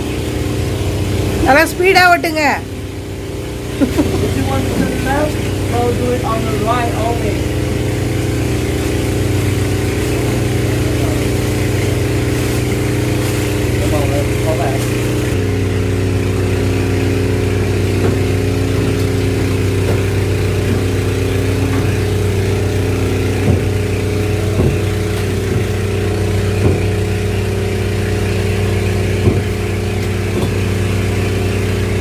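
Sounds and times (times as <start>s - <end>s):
engine running: 0.0s - 32.0s
short knocks: 23.2s - 27.1s, 29.0s - 30.8s.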